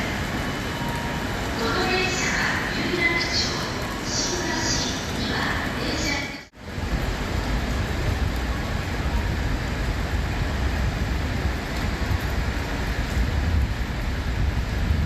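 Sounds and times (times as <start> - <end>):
wind and rain rushing: 0.0 - 15.0
wind buffeting microphone: 6.6 - 15.0.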